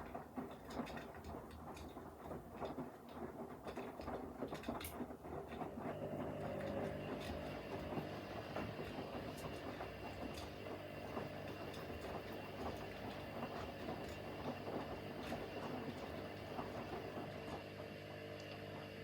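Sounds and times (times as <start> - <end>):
washing machine drum turning: 5.4 - 19.0.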